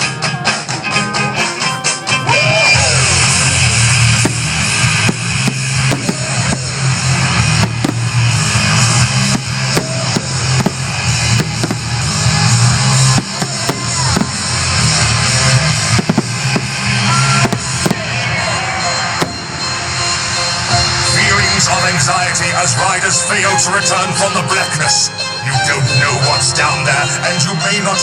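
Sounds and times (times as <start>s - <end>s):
rock music over speakers: 0.0s - 28.0s
firework bangs: 1.3s - 22.7s
whistling rockets popping: 1.4s - 22.0s.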